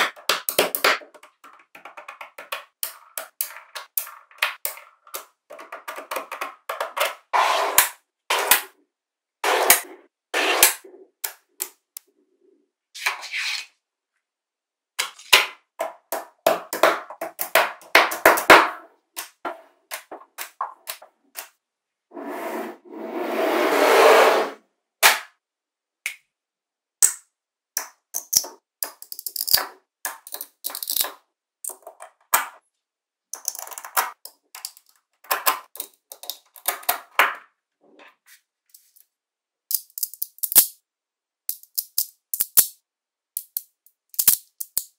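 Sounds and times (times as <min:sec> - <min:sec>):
magnetic balls clicking together: 0:27.8 - 0:32.0, 0:39.7 - 0:40.7, 0:41.5 - 0:42.7.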